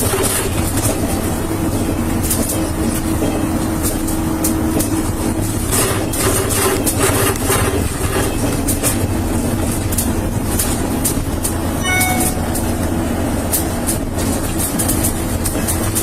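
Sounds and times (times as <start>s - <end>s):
vehicle road rumble and rattling: 0.0s - 11.8s, 12.4s - 16.0s
short electronic beep: 11.8s - 12.8s.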